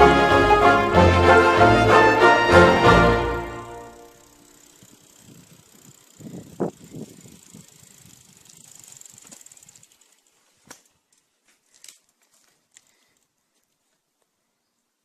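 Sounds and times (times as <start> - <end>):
bicycle freewheel ticking: 3.8 - 11.0
scattered bicycle clicks: 4.1 - 13.3
bicycle knocks and bumps: 5.4 - 12.9.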